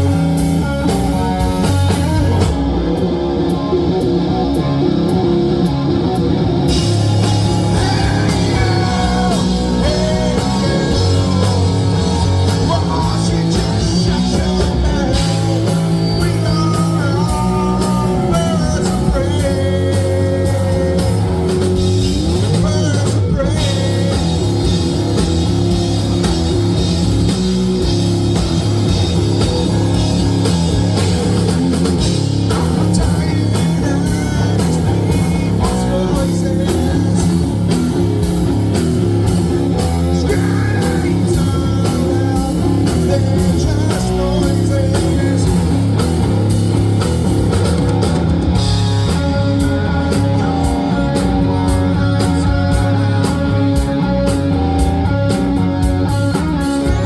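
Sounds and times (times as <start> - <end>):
bass guitar: 0.0 - 57.0
distorted electric guitars: 0.0 - 57.0
drum kit playing loudly: 0.0 - 57.0
person singing: 6.7 - 25.0, 32.4 - 38.4, 39.2 - 46.2, 48.9 - 55.4.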